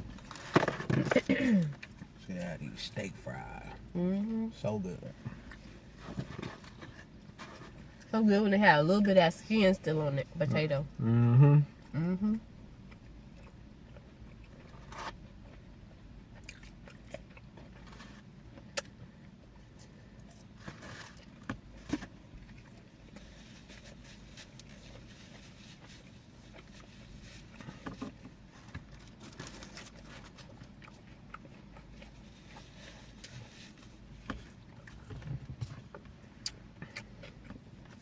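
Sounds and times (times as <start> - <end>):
chewing and biting food: 12.8 - 38.0.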